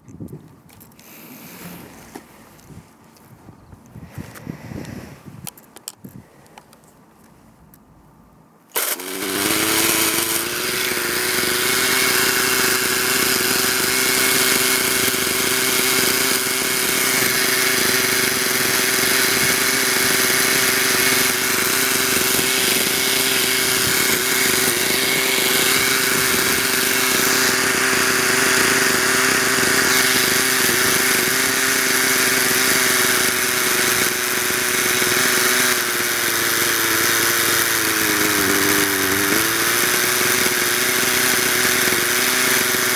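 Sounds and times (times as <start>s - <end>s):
model helicopter engine running: 8.8s - 42.9s.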